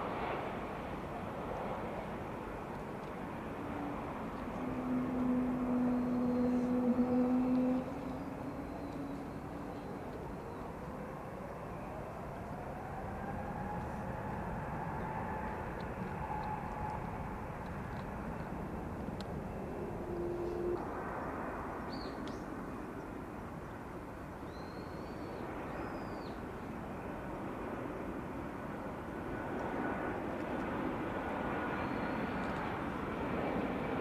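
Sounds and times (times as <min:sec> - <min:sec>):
distant jet engines rumbling: 0:00.0 - 0:34.0
short low hoot: 0:03.6 - 0:10.5, 0:19.5 - 0:21.0.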